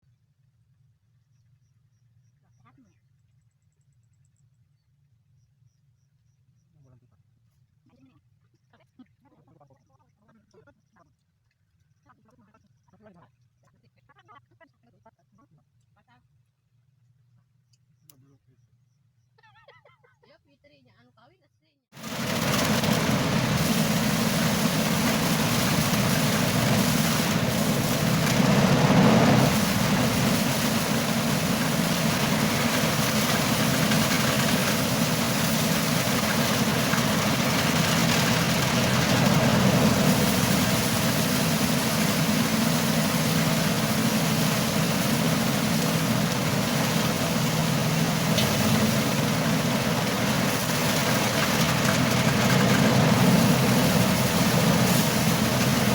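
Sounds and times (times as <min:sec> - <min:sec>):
threshing machine engine rumbling: 0:22.0 - 0:55.9.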